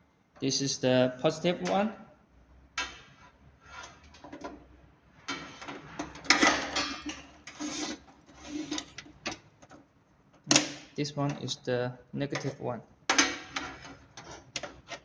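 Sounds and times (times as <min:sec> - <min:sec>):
cable handling scrapes and rubs: 0:03.1 - 0:04.2, 0:07.4 - 0:09.0, 0:13.6 - 0:15.0.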